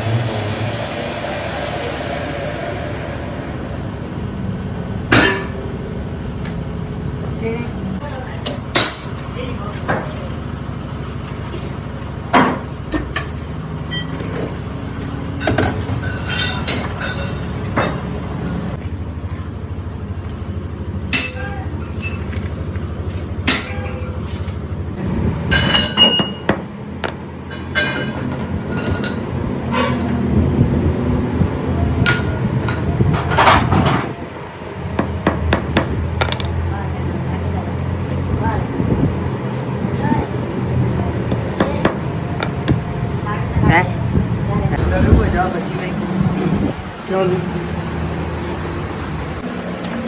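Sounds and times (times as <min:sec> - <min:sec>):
low machine hum: 0:00.0 - 0:50.0
metal tools clinking and tapping: 0:15.4 - 0:18.1, 0:25.5 - 0:30.2, 0:32.0 - 0:33.7.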